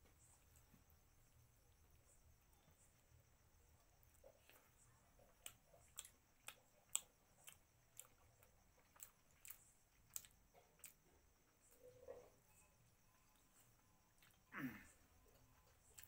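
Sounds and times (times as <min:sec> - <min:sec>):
sharp mouth clicks from chewing: 0:04.2 - 0:11.1.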